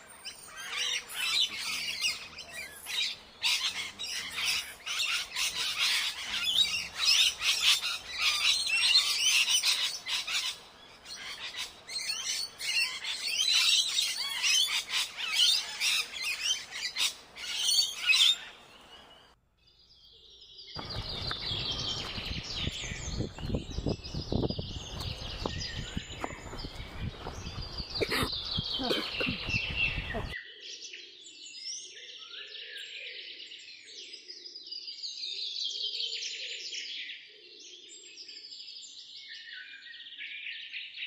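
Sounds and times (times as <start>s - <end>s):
flock of birds chirping: 0.0s - 41.0s
rough rumbling outdoor noise: 20.8s - 30.4s.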